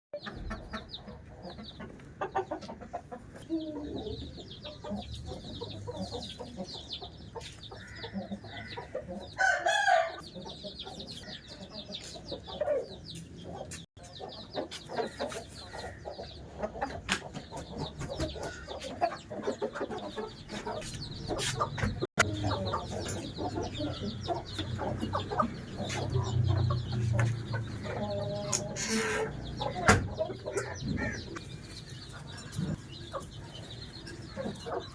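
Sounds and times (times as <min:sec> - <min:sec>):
fowl clucking: 0:00.2 - 0:06.8, 0:14.5 - 0:31.4
rooster crowing: 0:09.4 - 0:10.2.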